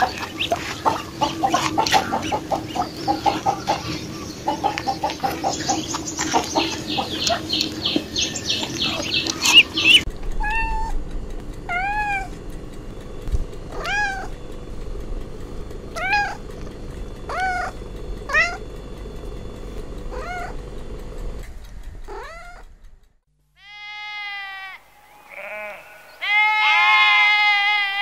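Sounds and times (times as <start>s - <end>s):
cat meowing: 10.4s - 11.0s, 11.7s - 12.3s, 13.7s - 14.3s, 16.0s - 16.4s, 17.3s - 18.6s, 20.1s - 20.6s, 22.1s - 22.6s, 23.6s - 28.0s
sheep bleating: 23.6s - 28.0s.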